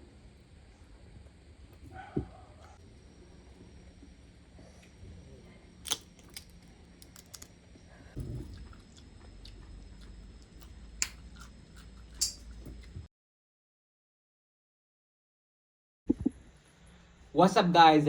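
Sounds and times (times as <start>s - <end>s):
low steady hum: 0.0s - 13.1s
chewing with crunches: 5.9s - 13.1s.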